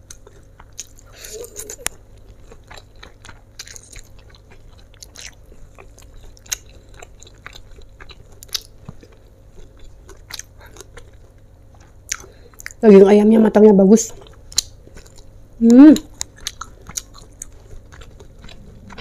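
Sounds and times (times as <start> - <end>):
person chewing and biting: 0.0 - 12.8, 14.2 - 15.4, 16.1 - 19.0.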